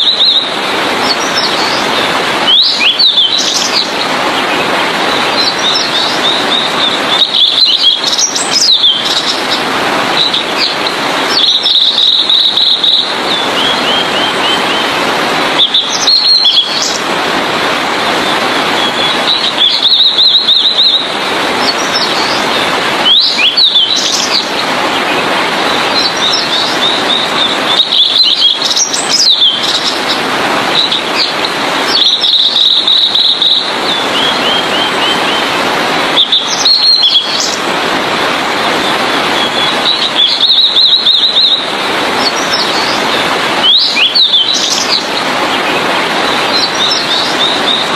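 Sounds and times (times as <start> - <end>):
flycatcher singing: 0.0 - 4.0, 5.2 - 9.6, 10.2 - 14.9, 15.6 - 17.0, 18.8 - 25.0, 25.7 - 30.2, 30.8 - 35.5, 36.2 - 37.6, 39.4 - 43.0, 43.6 - 45.6
steady rushing background noise: 0.0 - 47.9.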